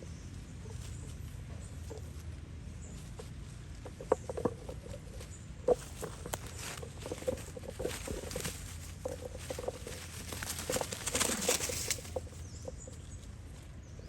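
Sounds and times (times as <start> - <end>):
rustling and scuffling: 0.2 - 14.0
monkeys squeaking: 4.6 - 13.2.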